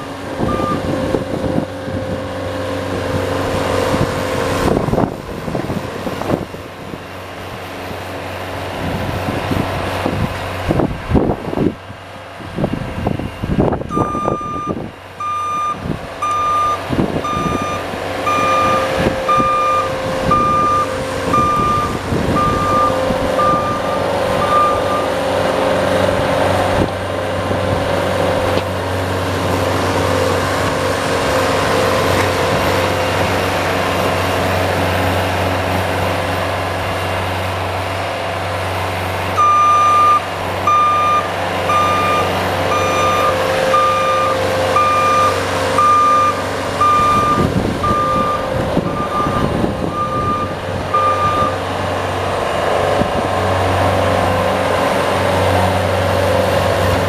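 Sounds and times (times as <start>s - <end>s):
engine running: 0.0s - 57.0s
vehicle reversing alarm beeping: 0.4s - 1.0s, 13.2s - 25.3s, 39.4s - 51.7s.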